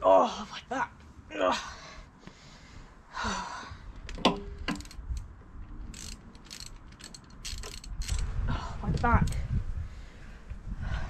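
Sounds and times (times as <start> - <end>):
socket ratchet clicking: 4.5 - 5.3, 5.9 - 8.3.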